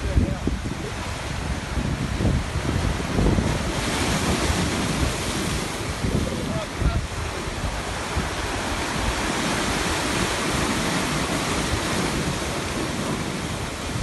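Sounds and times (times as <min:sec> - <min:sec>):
sea waves washing onto shore: 0:00.0 - 0:14.0
wind rumble on microphone: 0:00.0 - 0:14.0.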